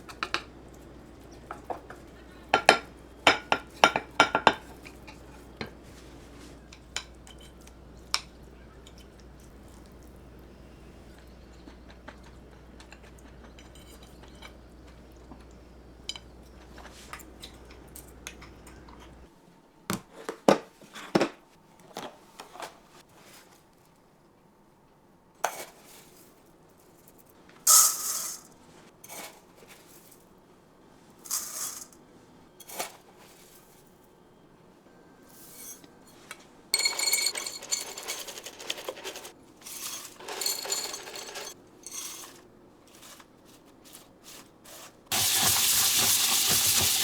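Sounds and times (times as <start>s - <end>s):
steady low hum: 0.0s - 19.3s
utensils clinking against dishes: 0.0s - 19.3s, 35.5s - 43.2s
utensil scraping: 43.9s - 47.0s.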